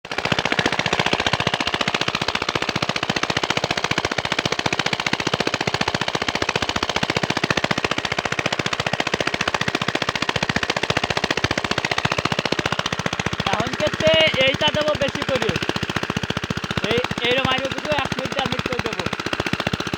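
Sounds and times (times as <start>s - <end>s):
diesel engine running: 7.7s - 19.9s.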